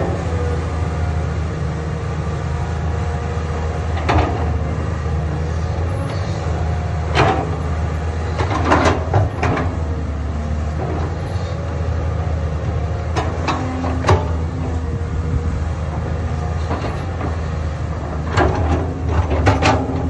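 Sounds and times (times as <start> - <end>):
excavator diesel engine running: 0.0 - 20.0
machine clanks and knocks: 4.0 - 4.6, 7.1 - 7.6, 8.3 - 9.9, 13.1 - 14.8, 18.1 - 20.0.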